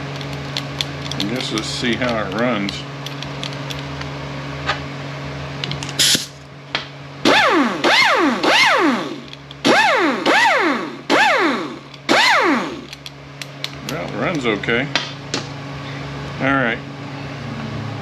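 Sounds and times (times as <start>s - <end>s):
steady low hum: 0.0s - 18.0s
air impact wrench whining: 6.0s - 6.4s, 7.2s - 13.0s.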